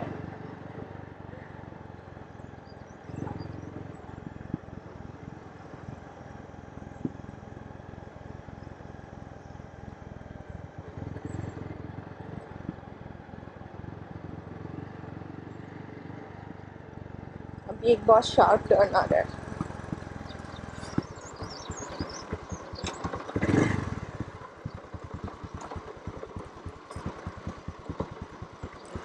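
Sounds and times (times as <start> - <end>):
wind buffeting microphone: 0.0 - 6.2, 17.7 - 29.0
motorcycle rumble: 0.0 - 29.0.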